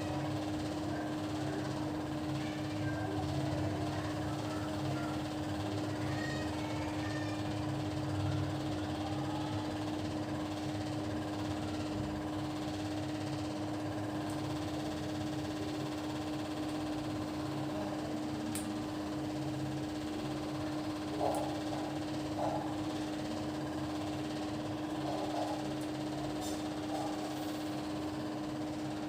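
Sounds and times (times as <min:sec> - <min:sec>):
machine hum with constant tone: 0:00.0 - 0:29.0.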